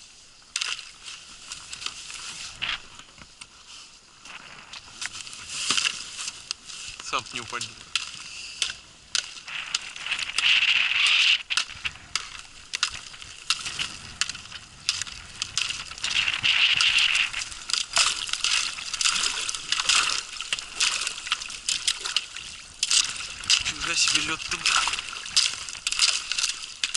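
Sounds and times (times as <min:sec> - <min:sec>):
water sloshing and splashing: 0:00.0 - 0:26.9
ice cracking and crunching: 0:04.3 - 0:26.9.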